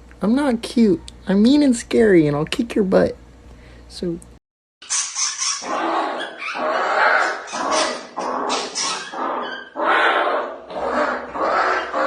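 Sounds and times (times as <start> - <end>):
dog barking: 5.1 - 12.0.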